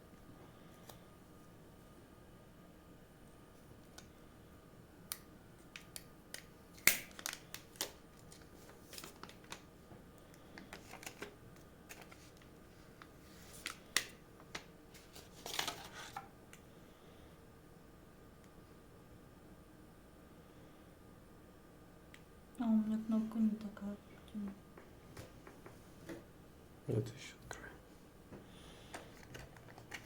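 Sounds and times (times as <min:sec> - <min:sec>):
packaging rustling: 0:05.8 - 0:09.7, 0:10.3 - 0:16.2, 0:28.8 - 0:30.0.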